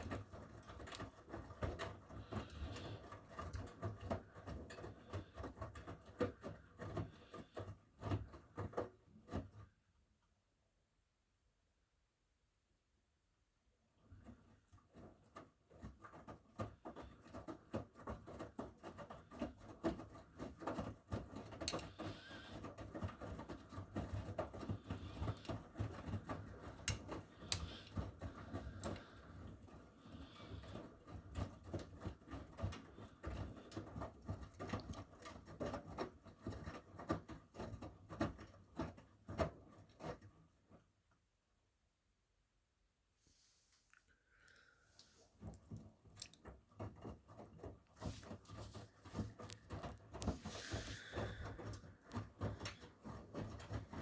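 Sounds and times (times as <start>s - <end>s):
washing machine laundry tumbling: 0.0s - 9.8s, 14.0s - 40.9s, 45.3s - 54.0s.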